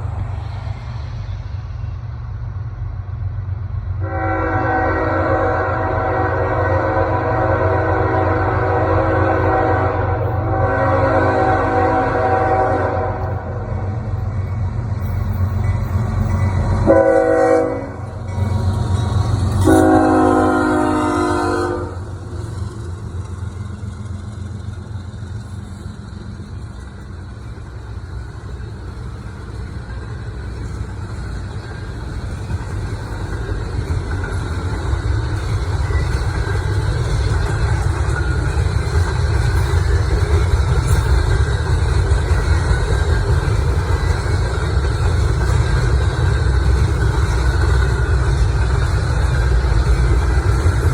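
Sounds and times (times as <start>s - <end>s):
train rumbling: 0.0s - 50.9s
locomotive horn blasts: 4.0s - 13.6s, 16.8s - 18.2s, 19.5s - 22.0s.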